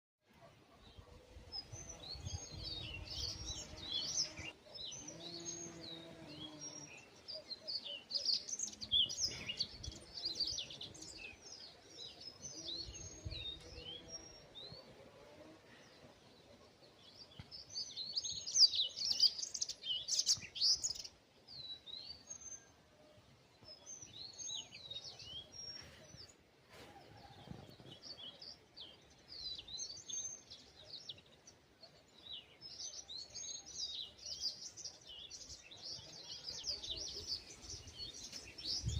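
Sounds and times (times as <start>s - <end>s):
small birds chirping: 0.4s - 38.9s.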